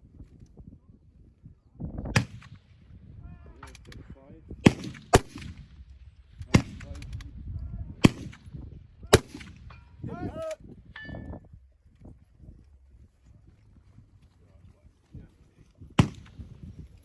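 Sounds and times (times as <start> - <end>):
rifle shots: 2.1 - 2.7, 4.6 - 7.2, 8.0 - 9.9, 16.0 - 16.6.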